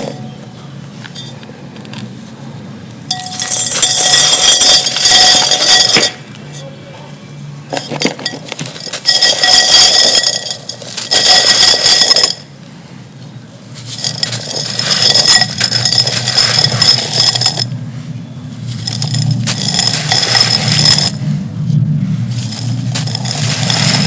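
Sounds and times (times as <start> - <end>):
clay and glass crunching by hand: 3.1 - 6.2, 7.8 - 12.4, 13.9 - 17.7, 18.7 - 21.2, 22.4 - 24.0.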